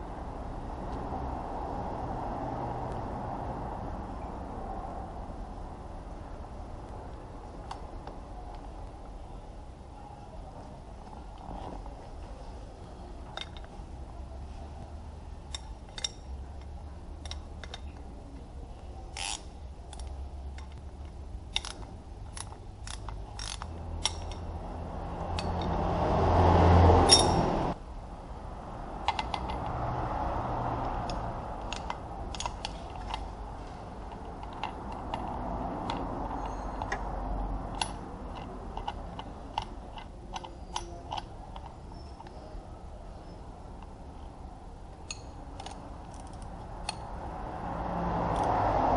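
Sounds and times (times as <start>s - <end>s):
metallic clinks of hand tools: 27.1s - 27.5s, 45.1s - 47.0s.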